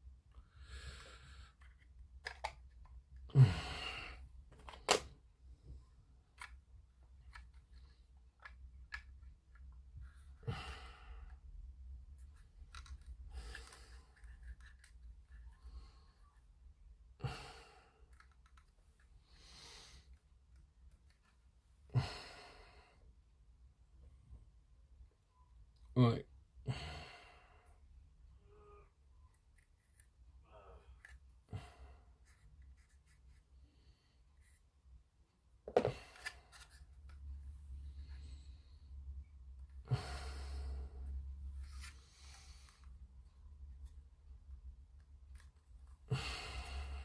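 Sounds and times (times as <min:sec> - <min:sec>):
person sighing heavily: 0:03.3 - 0:04.3, 0:10.4 - 0:11.2, 0:17.2 - 0:18.0, 0:21.9 - 0:22.9, 0:26.6 - 0:27.5, 0:39.8 - 0:41.0, 0:46.1 - 0:47.0.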